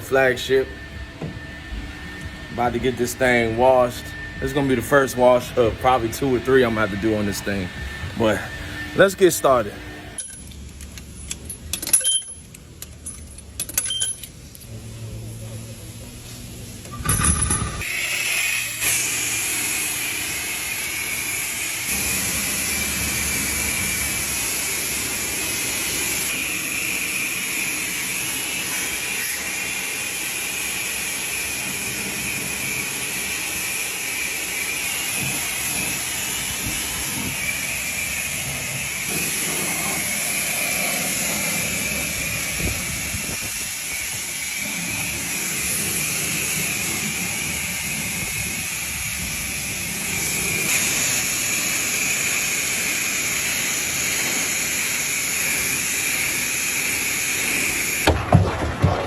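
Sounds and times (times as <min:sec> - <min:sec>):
high whine: 0:00.0 - 0:12.5
pressure washer spray hissing: 0:17.8 - 0:58.0.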